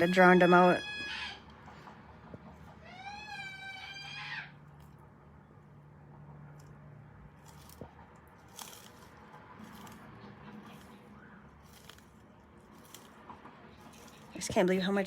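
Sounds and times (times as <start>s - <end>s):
tortoise biting leaves: 0.0s - 15.0s.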